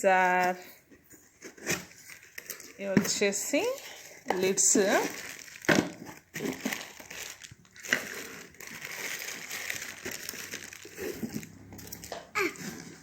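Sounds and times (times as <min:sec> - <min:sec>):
packaging crinkling and rustling: 0:00.2 - 0:13.0
sharp crackle: 0:06.4 - 0:12.7.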